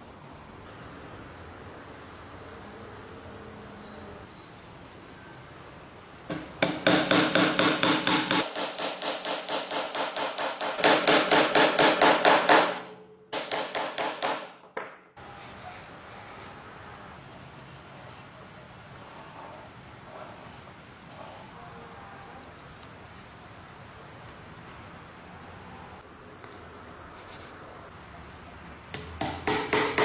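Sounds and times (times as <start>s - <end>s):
rapid sharp ringing knocks: 6.3s - 14.8s, 29.2s - 30.0s.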